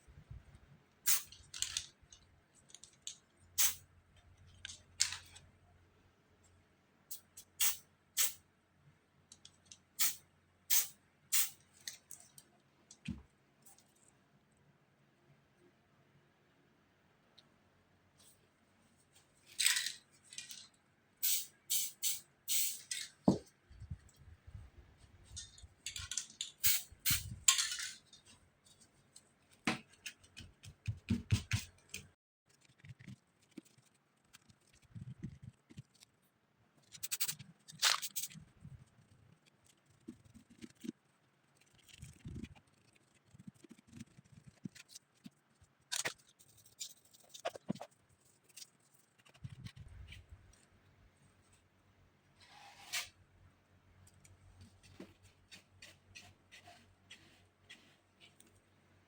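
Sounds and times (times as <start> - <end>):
tools and paper scraping and knocking: 54.6 - 58.7.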